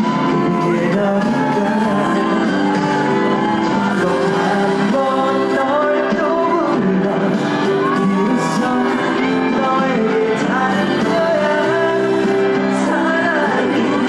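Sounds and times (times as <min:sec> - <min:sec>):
band backing music: 0:00.0 - 0:14.0
person singing: 0:00.0 - 0:14.0.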